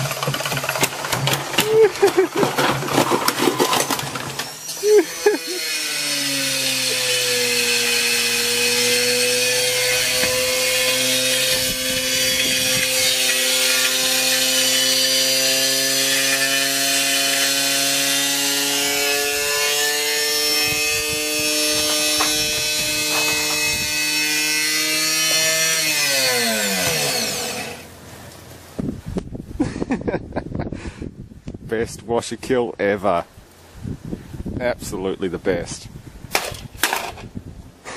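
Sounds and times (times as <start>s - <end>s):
grinding scraping in drum: 0.0s - 5.6s, 18.7s - 27.9s.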